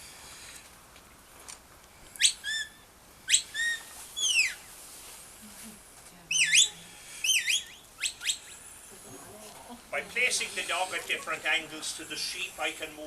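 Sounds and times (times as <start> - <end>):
shepherd's whistle commands: 2.2 - 4.6, 6.3 - 8.4.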